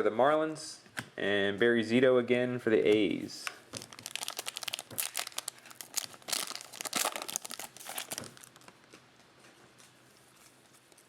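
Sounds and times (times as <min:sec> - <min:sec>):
crinkly wrapping rustling: 0:03.7 - 0:11.0.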